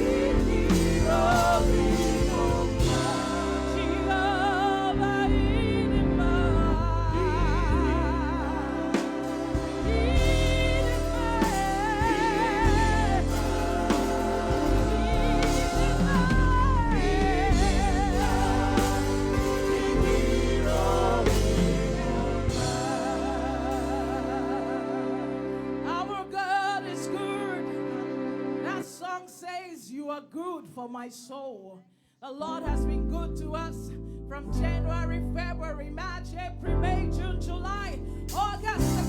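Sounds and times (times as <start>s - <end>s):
band accompaniment with bass: 0.0s - 26.2s, 36.8s - 39.0s
person singing with vibrato: 0.0s - 33.7s.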